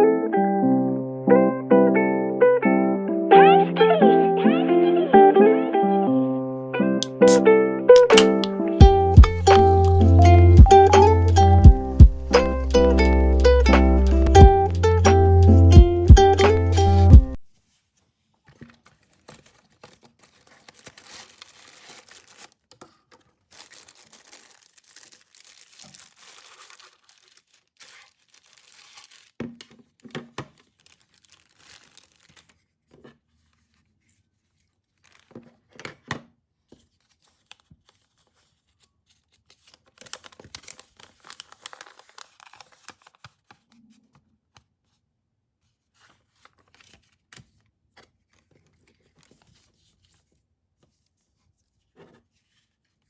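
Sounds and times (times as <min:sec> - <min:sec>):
packaging rustling and tearing: 0:17.6 - 0:35.8, 0:36.8 - 0:44.0, 0:45.8 - 0:51.0.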